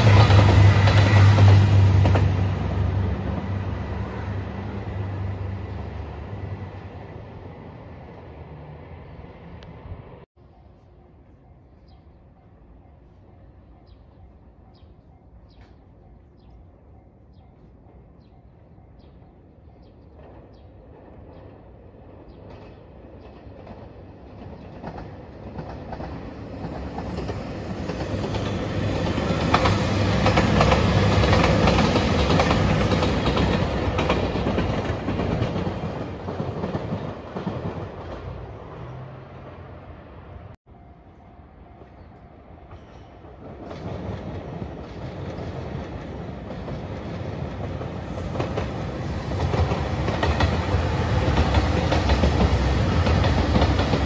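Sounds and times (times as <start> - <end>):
diesel train passing: 0.0 - 54.0
wheels clacking over rail joints: 20.1 - 39.0, 42.7 - 54.0.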